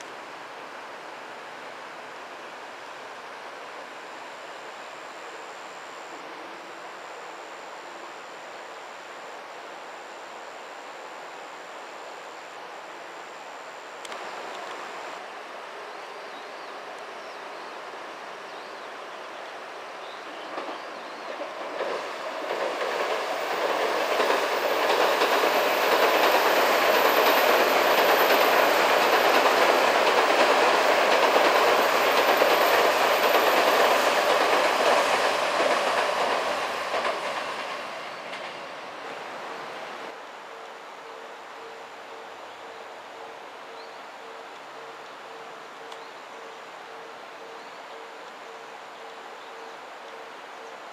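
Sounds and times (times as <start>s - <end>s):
electric train passing: 19.6s - 40.6s.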